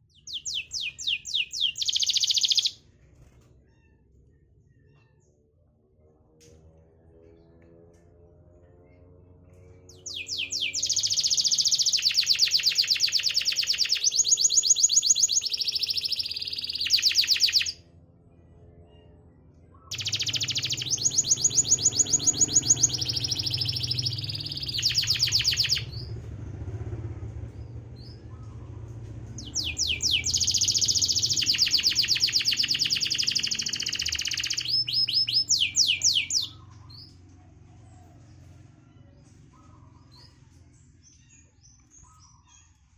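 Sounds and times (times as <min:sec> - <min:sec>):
canary singing trills: 0:00.0 - 0:02.8, 0:09.9 - 0:17.8, 0:19.9 - 0:27.0, 0:27.6 - 0:37.3.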